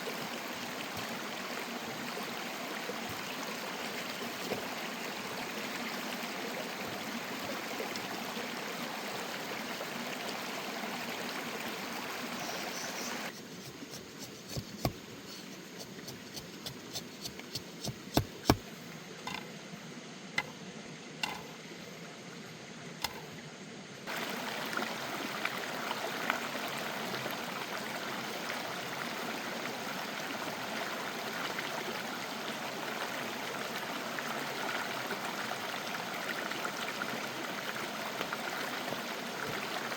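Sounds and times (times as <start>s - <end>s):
stream rushing: 0.0s - 19.4s, 24.1s - 39.9s
sharp clicks and knocks: 19.2s - 19.5s, 21.2s - 21.5s, 23.0s - 23.3s.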